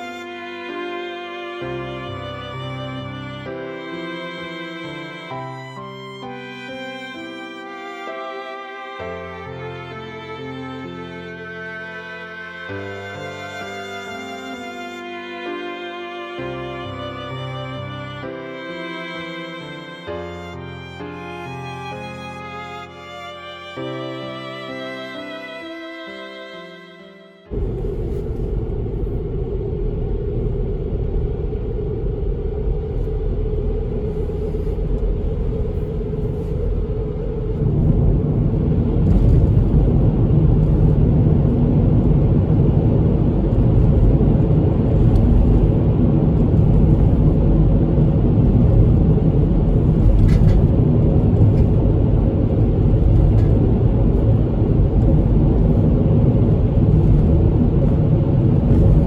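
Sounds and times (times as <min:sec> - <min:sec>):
steady low rumble: 0:27.5 - 0:59.0.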